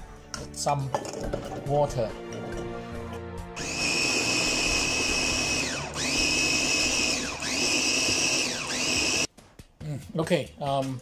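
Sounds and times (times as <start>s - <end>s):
electric blender whining: 3.6s - 9.3s.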